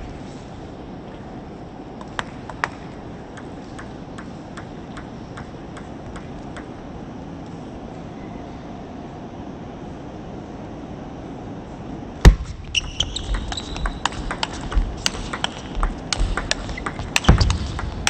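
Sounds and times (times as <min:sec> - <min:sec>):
hall hum: 0:00.0 - 0:18.0
table tennis ball bouncing: 0:02.0 - 0:07.0, 0:12.3 - 0:18.0.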